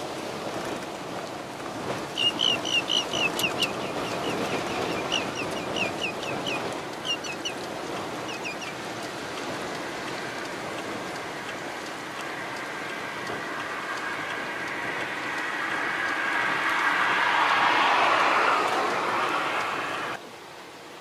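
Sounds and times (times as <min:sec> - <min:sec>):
wind and rain rushing: 0:00.0 - 0:21.0
wading bird calling: 0:02.1 - 0:08.8.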